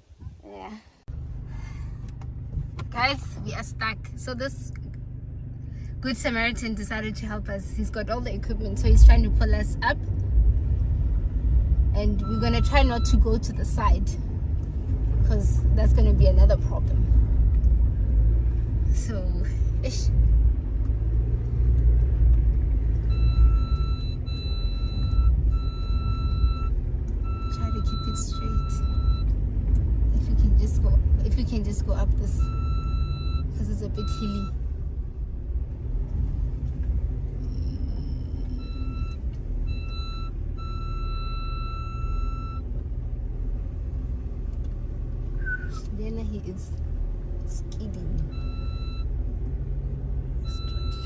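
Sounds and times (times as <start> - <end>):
vehicle engine rumble: 0.0 - 51.0
reversing alarm beeping: 12.2 - 13.2, 23.1 - 29.3, 32.4 - 34.6, 38.4 - 42.6, 48.3 - 49.1, 50.4 - 51.0.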